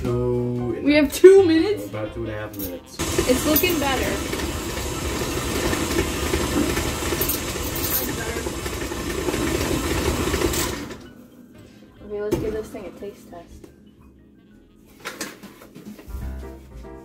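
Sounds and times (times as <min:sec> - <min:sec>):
electric kitchen mixer running: 0:03.0 - 0:11.1.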